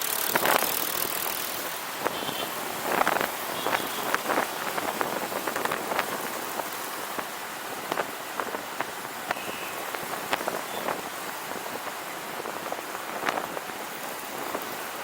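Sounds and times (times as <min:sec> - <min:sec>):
sharp ticks and crackles: 0:00.0 - 0:07.3.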